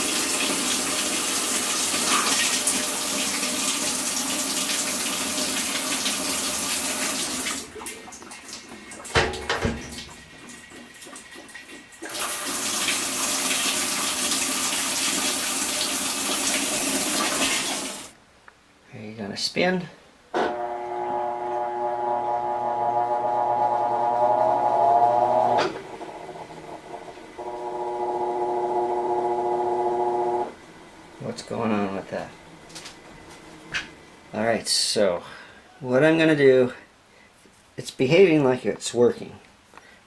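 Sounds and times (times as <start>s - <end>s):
water rushing into washing machine: 0.0s - 18.1s, 24.8s - 32.2s
washing machine click: 9.1s - 10.1s.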